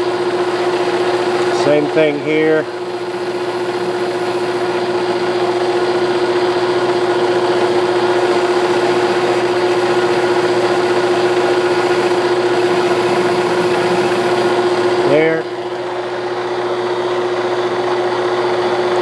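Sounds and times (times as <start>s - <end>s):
metal lathe running: 0.0s - 19.0s
steady tone: 9.1s - 15.8s.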